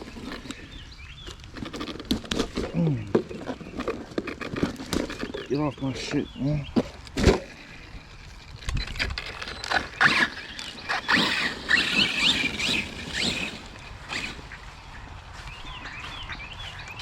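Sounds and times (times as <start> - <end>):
rc truck motor whine: 7.4 - 14.6.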